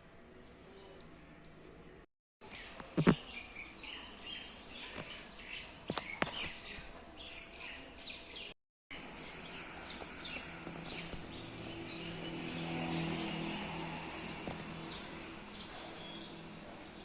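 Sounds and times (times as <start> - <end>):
small birds chirping: 2.4 - 17.0.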